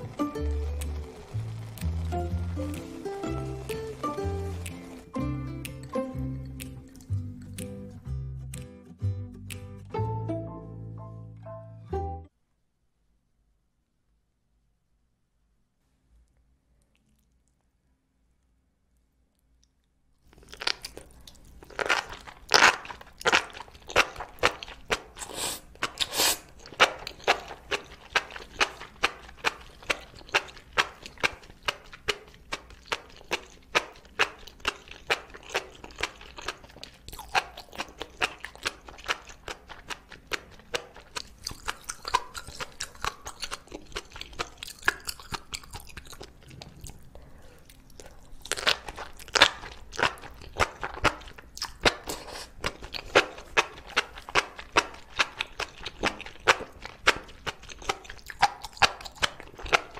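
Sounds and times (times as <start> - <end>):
wet crunchy chewing: 0.0 - 8.0, 20.2 - 59.9.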